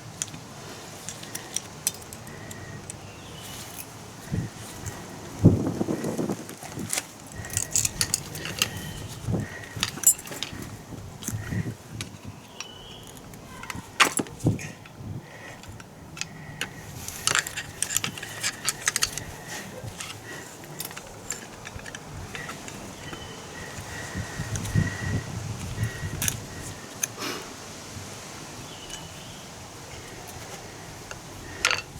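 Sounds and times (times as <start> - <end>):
metal parts and tools clinking: 1.0 - 5.0, 6.8 - 24.9, 30.0 - 31.9.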